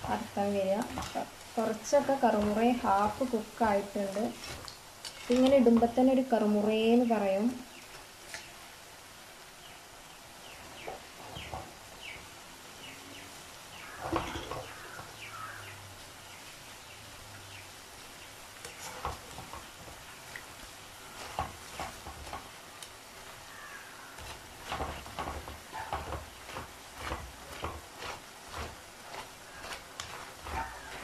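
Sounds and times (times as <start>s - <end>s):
fries scraped in pan: 0.0s - 6.2s, 18.6s - 31.0s
fries sizzling in oil: 0.0s - 31.0s.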